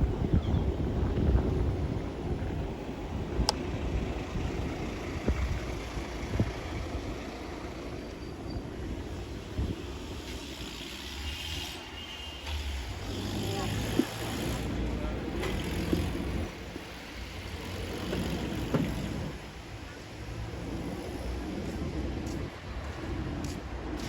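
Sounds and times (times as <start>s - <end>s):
wind rushing over microphone: 0.0s - 10.7s
motorbike road rumble: 0.0s - 24.0s.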